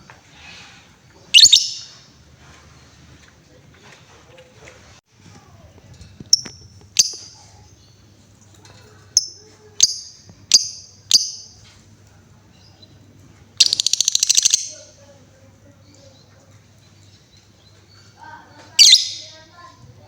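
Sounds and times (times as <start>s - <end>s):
lovebird chirping: 1.3s - 2.1s, 6.3s - 8.1s, 9.1s - 11.6s, 13.6s - 15.0s, 17.0s - 19.5s
lovebird chattering trill: 1.4s - 2.0s, 6.3s - 7.9s, 9.1s - 11.6s, 13.6s - 15.0s, 18.8s - 19.5s.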